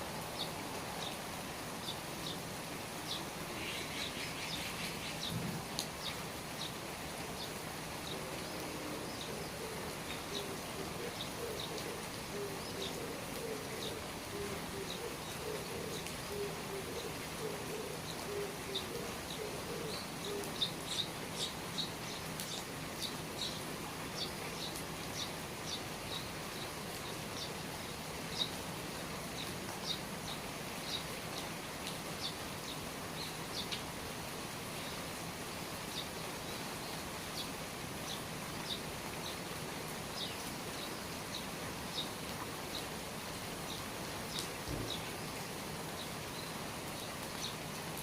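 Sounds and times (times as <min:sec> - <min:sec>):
steady rain falling: 0:00.0 - 0:48.0
low wavering cooing call: 0:08.1 - 0:20.8.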